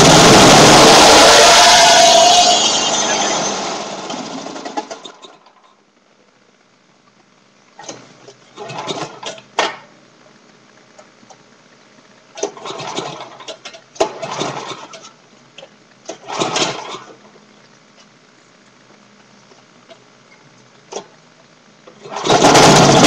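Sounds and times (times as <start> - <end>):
recoil starter pulls: 12.4 - 17.2, 21.9 - 23.0.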